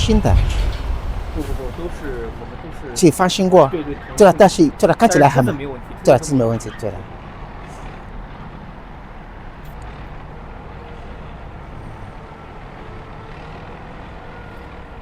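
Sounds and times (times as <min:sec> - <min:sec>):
low mechanical rumble: 0:00.0 - 0:03.0.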